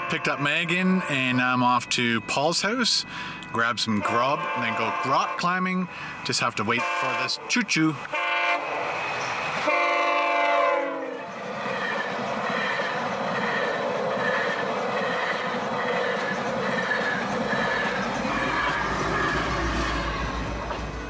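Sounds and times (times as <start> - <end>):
train rumble: 0.0 - 21.0
train horn: 4.0 - 5.6, 6.7 - 7.4, 8.1 - 8.8, 9.6 - 11.4.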